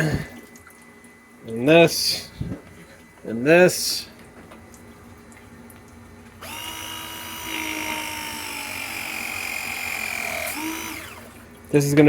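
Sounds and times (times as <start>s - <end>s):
small electric motor whining: 6.4s - 11.5s.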